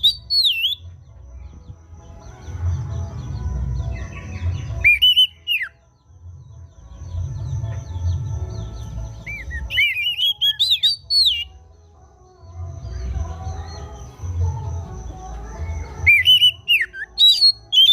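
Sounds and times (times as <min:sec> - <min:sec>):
bird singing whistled phrases: 0:00.0 - 0:00.9, 0:04.8 - 0:05.8, 0:09.2 - 0:11.6, 0:16.0 - 0:17.9
soft bird chirps: 0:00.0 - 0:17.9.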